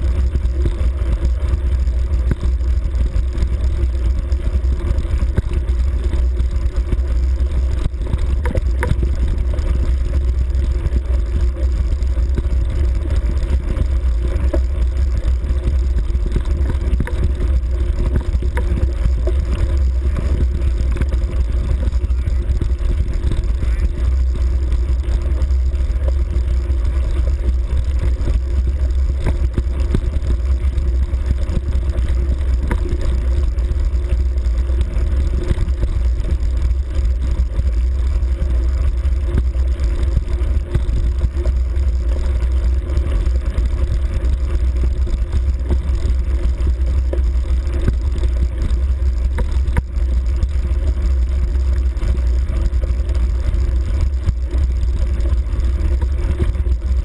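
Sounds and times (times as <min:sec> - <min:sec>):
dirt bike engine droning: 0:00.0 - 0:57.0
small knocks from bumps: 0:07.8 - 0:09.4, 0:16.0 - 0:24.2.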